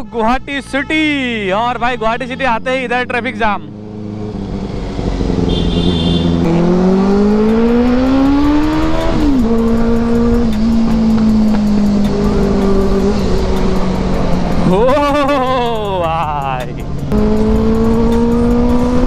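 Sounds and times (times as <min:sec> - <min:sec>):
motorcycle engine accelerating: 0:02.9 - 0:16.0, 0:16.9 - 0:19.0.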